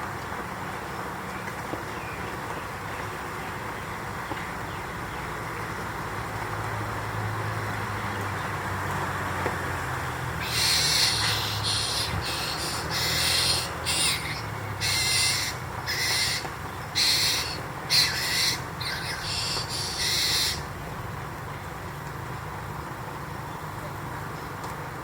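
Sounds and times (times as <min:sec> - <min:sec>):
harsh raspy bird calls: 0:10.3 - 0:20.8.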